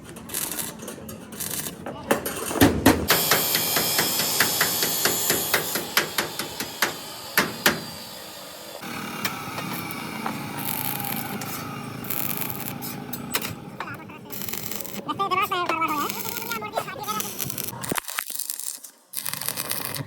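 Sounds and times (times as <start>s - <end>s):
workshop noise: 0.0s - 18.0s
hammer blows: 2.6s - 15.0s.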